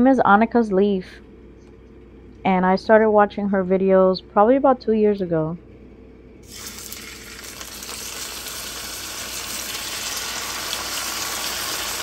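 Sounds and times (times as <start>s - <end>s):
chicken sizzling in a frying pan: 6.4s - 12.0s.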